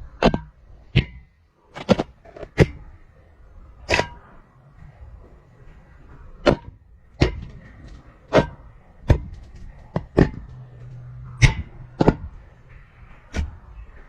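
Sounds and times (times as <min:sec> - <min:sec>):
camera knocking against pipe walls: 0:08.4 - 0:12.4.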